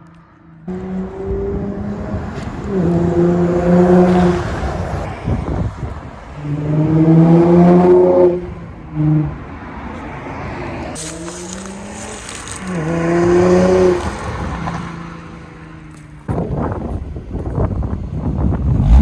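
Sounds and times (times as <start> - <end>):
car engine revving: 0.6 - 9.6, 10.4 - 15.6, 18.6 - 19.0.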